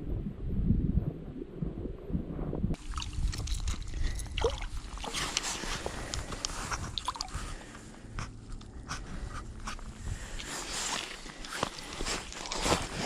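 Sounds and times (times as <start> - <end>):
wind buffeting microphone: 0.0 - 8.2, 8.8 - 13.0
handling noise clicks and scrapes: 5.0 - 13.0.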